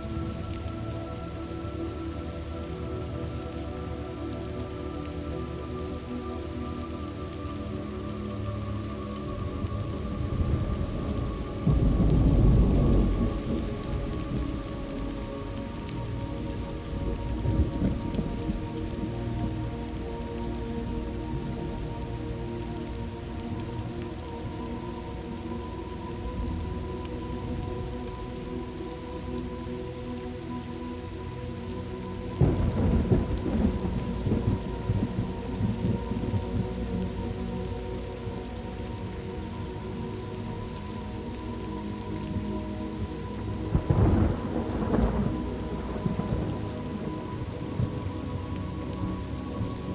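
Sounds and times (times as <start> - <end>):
steady rain: 0.0 - 49.9
thunder rumbling: 9.4 - 20.1, 32.4 - 37.6, 43.0 - 49.9.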